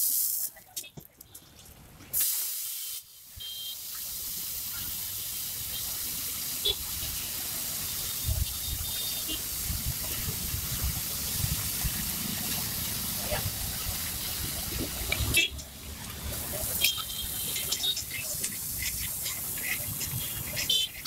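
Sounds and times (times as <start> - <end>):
steam hissing: 2.1 - 15.5, 16.1 - 21.0
water splashing on hot griddle: 2.1 - 21.0.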